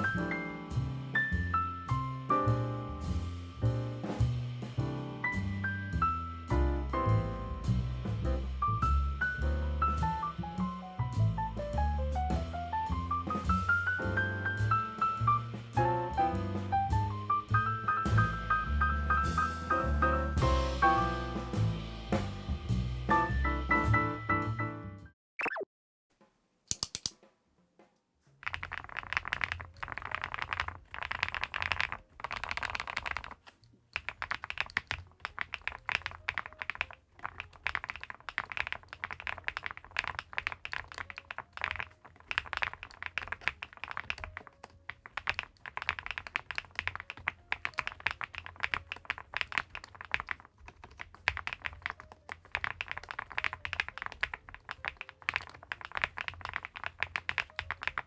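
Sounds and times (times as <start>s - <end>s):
fast mechanical keyboard typing: 28.4s - 58.0s.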